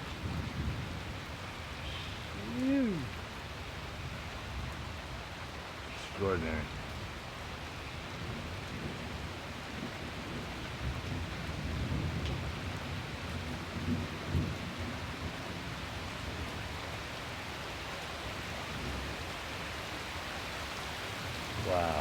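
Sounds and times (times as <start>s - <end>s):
low rumble of thunder: 0.0s - 2.4s, 8.0s - 16.6s
heavy rain falling: 0.0s - 22.0s.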